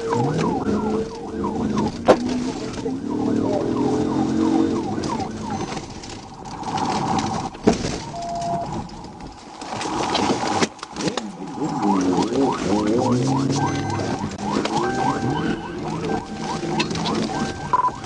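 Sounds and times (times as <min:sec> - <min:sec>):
police siren: 0:00.0 - 0:08.8, 0:11.5 - 0:18.0
car engine running: 0:11.4 - 0:18.0.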